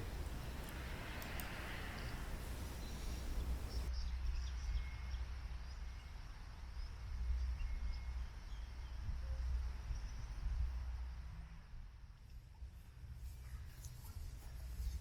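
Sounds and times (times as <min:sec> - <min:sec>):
faint bird chirps: 0:00.0 - 0:03.9.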